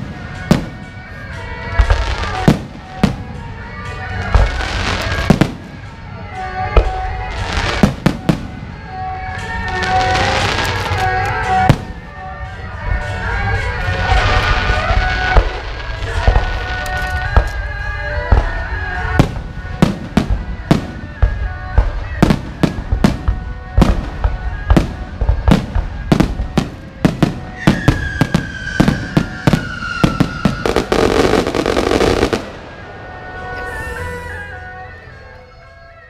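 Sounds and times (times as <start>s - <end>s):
fireworks bursting: 0.0s - 34.9s
fireworks crackling: 0.0s - 35.1s
music playing: 0.0s - 36.0s.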